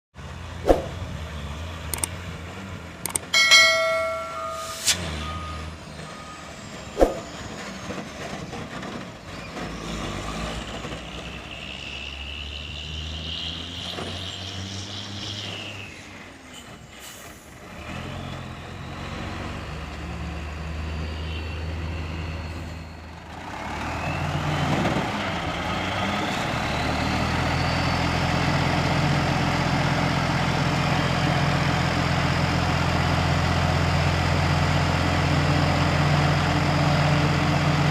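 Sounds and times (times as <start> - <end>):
high whine: 3.4 - 7.3
diesel truck engine running: 22.9 - 37.9.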